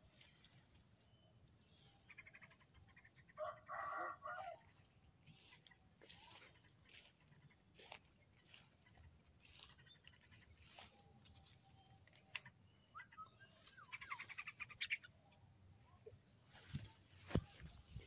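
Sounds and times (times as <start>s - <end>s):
songbird chirps and whistles: 11.4s - 15.0s.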